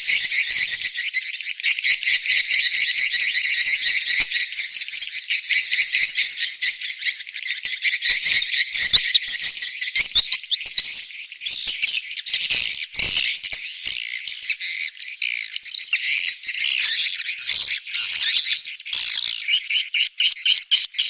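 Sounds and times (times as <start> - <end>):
swiftlets twittering: 0.0 - 13.8.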